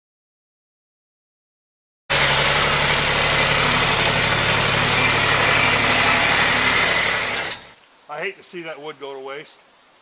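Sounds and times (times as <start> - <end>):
engine running steadily: 2.1 - 7.8.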